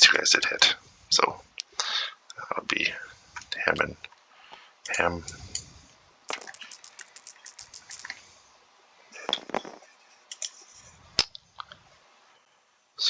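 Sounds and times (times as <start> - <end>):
dice rattling: 6.3 - 8.1, 9.3 - 9.8
game pieces clicking: 6.3 - 8.1.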